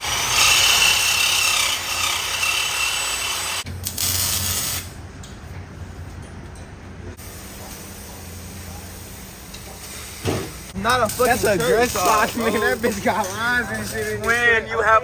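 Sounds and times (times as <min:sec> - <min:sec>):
power tool rasping: 0:00.0 - 0:04.8.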